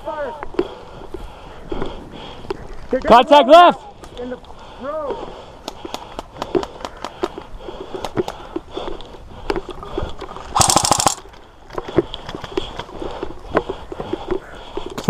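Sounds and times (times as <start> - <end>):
airsoft gun full-auto burst: 10.6 - 11.2.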